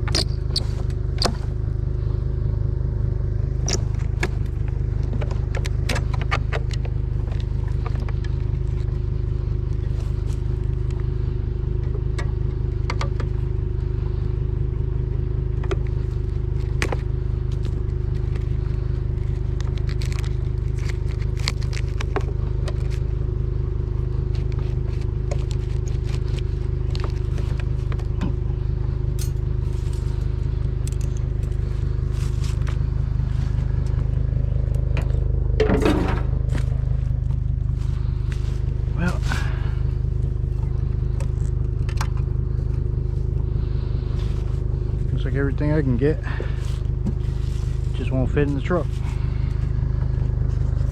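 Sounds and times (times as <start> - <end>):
truck engine and road rumble: 0.0 - 50.9
clicks and rattles: 3.6 - 8.4.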